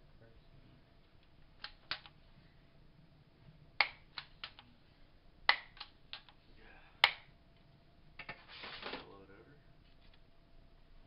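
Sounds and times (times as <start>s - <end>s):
sharp clicks: 1.6s - 2.2s, 3.8s - 4.7s.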